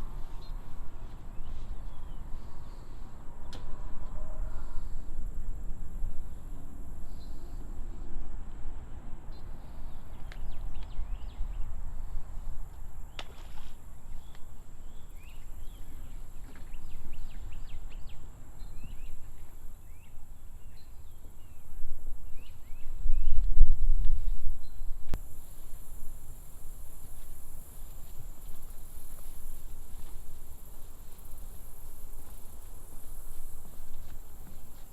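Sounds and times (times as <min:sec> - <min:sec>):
small birds chirping: 0:00.0 - 0:03.6, 0:13.0 - 0:23.6.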